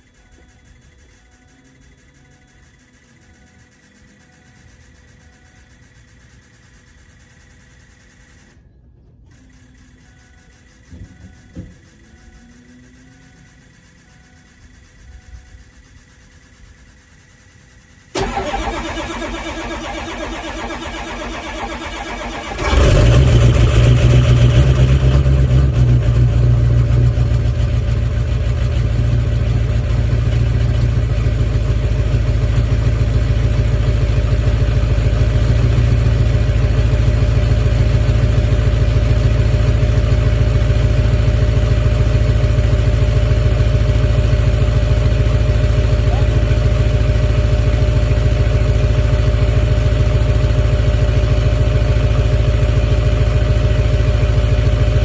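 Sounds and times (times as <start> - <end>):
starter motor cranking: 18.1 - 40.4
diesel engine idling loudly: 18.1 - 55.0.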